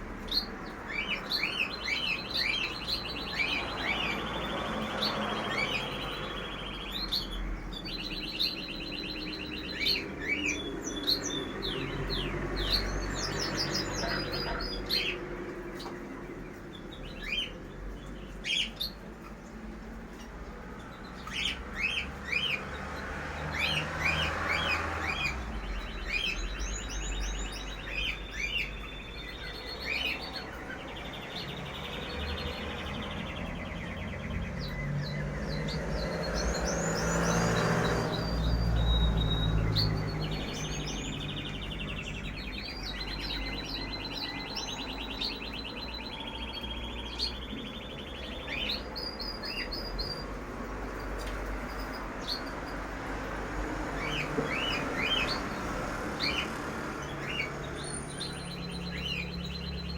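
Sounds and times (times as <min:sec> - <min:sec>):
small birds chirping and trilling: 0:00.0 - 0:59.9.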